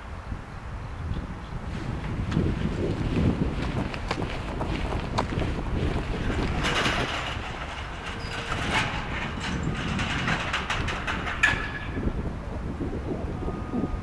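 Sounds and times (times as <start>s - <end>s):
train rumbling on rails: 0.0s - 14.0s
sharp clicks and clatter: 3.6s - 12.0s.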